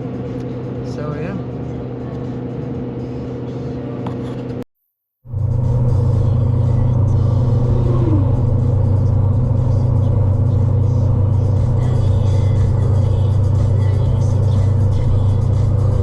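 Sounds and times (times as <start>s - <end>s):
truck driving drone: 0.0s - 4.6s, 5.3s - 16.0s
music playing: 5.3s - 16.0s.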